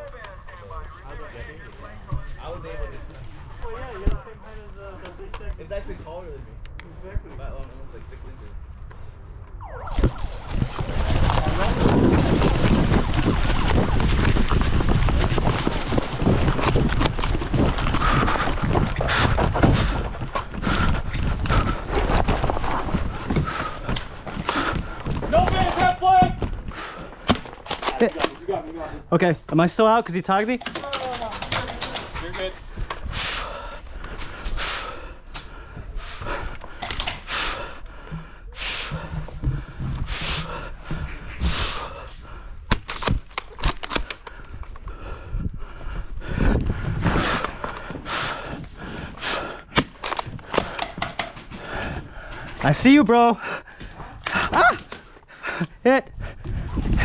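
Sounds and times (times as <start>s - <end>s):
sharp clicks: 6.6s - 6.9s, 42.7s - 44.8s, 49.7s - 51.5s
running footsteps: 7.4s - 29.7s, 30.7s - 57.0s
wind on microphone: 9.5s - 25.4s, 44.5s - 49.2s, 56.1s - 57.0s
heavy breathing: 17.5s - 25.3s, 26.5s - 27.6s, 31.6s - 43.0s, 43.9s - 52.6s, 53.3s - 57.0s
gear clattering: 30.6s - 32.4s.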